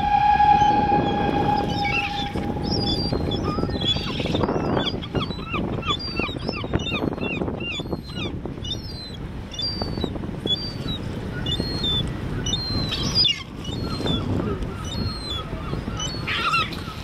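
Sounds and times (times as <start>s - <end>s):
steady low rumble: 0.0s - 4.4s
bird calling high notes: 0.0s - 6.3s.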